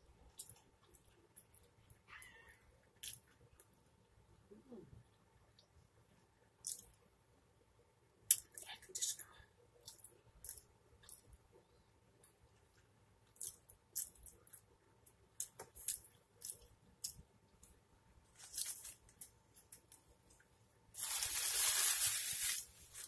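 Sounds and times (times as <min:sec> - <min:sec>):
paper napkin rustling: 0:21.0 - 0:23.0.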